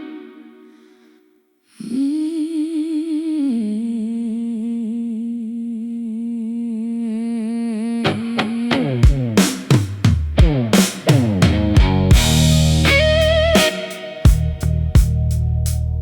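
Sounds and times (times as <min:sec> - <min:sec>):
distorted electric guitar: 0:08.8 - 0:16.0.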